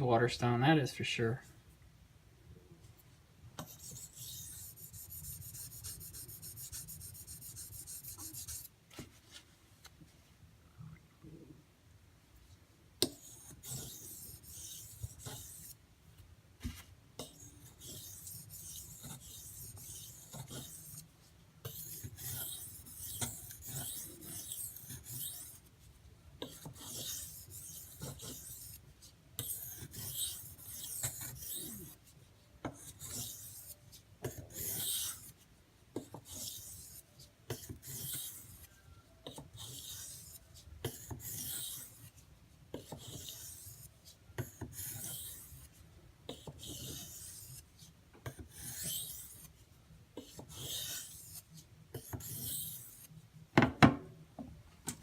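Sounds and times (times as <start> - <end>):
knife rasping on whetstone: 3.6 - 8.7, 13.1 - 15.8, 17.2 - 21.1, 21.7 - 25.6, 26.5 - 28.8, 29.4 - 32.0, 32.8 - 33.8, 34.4 - 35.3, 36.2 - 38.7, 39.6 - 42.1, 42.8 - 45.6, 46.3 - 47.6, 48.4 - 49.5, 50.5 - 51.4, 52.0 - 53.1.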